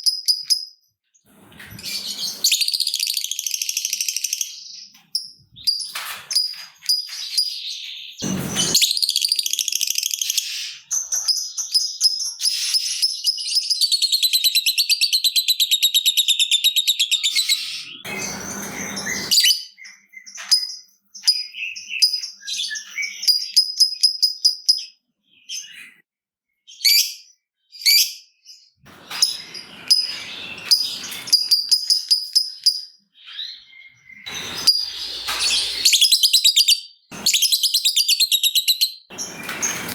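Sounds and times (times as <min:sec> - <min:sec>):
short noisy bursts: 0:08.2 - 0:08.9, 0:18.1 - 0:19.5.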